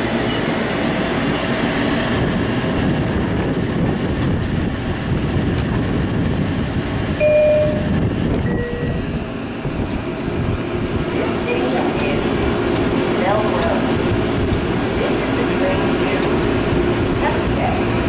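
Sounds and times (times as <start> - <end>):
electric train rumbling: 0.0 - 18.0
two-note chime: 7.2 - 9.0.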